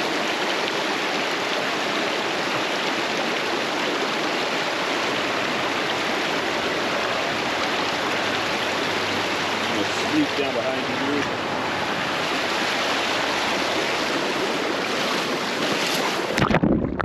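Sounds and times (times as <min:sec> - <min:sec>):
water rushing over rocks: 0:00.0 - 0:17.0.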